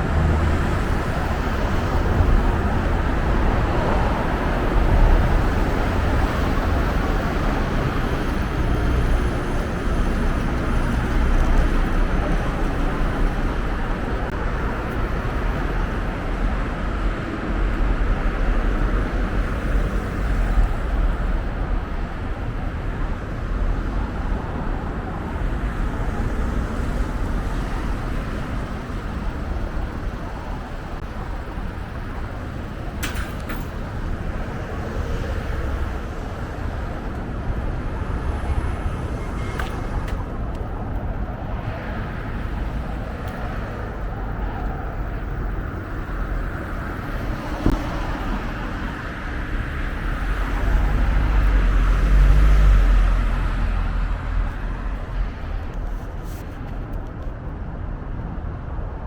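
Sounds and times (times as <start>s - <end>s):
road traffic passing: 0.0s - 59.0s.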